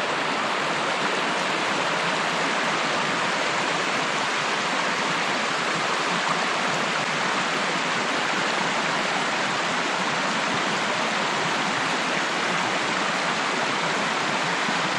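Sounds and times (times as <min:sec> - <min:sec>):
stream water rushing: 0:00.0 - 0:14.9.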